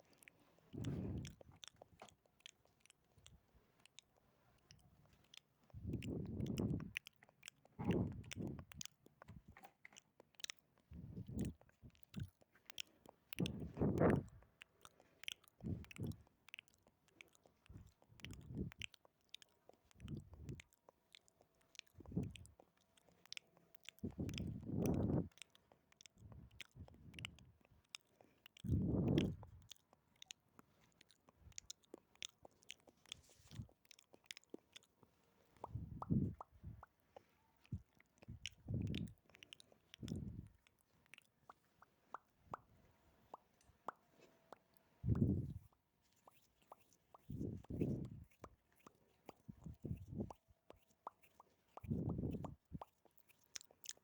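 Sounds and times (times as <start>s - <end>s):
lip and tongue clicks: 0.0s - 54.0s
low mouth bursts: 0.8s - 1.5s, 5.8s - 7.0s, 7.8s - 8.7s, 24.0s - 25.3s, 28.6s - 29.5s, 35.6s - 36.9s, 40.0s - 40.5s, 45.0s - 45.6s, 47.3s - 48.4s, 51.7s - 52.8s.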